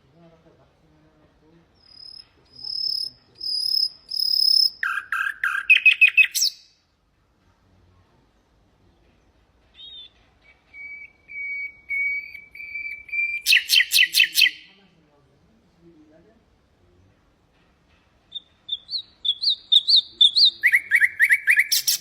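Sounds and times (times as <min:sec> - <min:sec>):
nightingale singing: 0:01.8 - 0:06.8, 0:08.9 - 0:14.8, 0:18.2 - 0:22.0.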